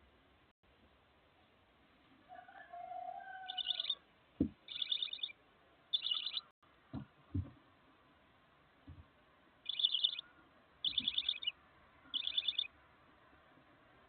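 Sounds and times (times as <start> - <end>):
bird chirping calls: 3.4 - 4.0, 4.6 - 6.5, 9.6 - 12.7
dull thumps: 4.4 - 4.7, 6.9 - 7.7, 8.8 - 9.2.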